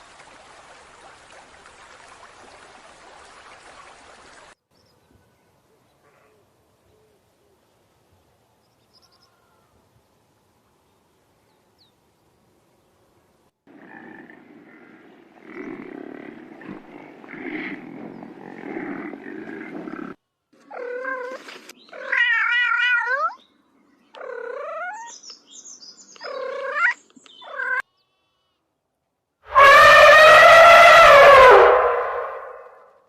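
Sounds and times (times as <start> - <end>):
loud animal call sliding down: 29.5 - 32.9.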